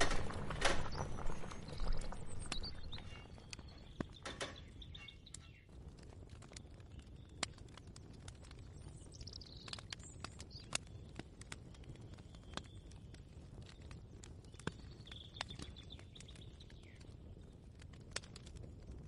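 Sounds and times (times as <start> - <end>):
low rumble: 0.0 - 4.3
bird chirping: 0.0 - 5.7.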